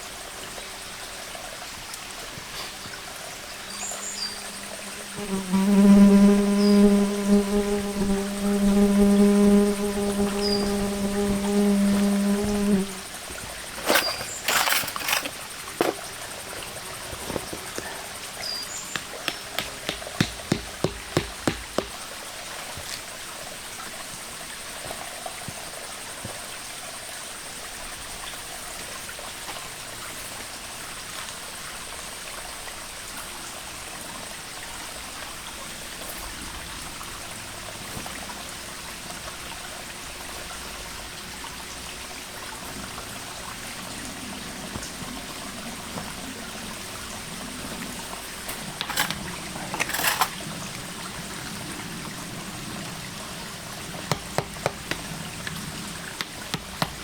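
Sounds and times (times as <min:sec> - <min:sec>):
stream water trickling: 0:00.0 - 0:05.3, 0:06.9 - 0:57.0
sharp knocks: 0:18.9 - 0:22.0, 0:54.1 - 0:55.6, 0:56.2 - 0:57.0.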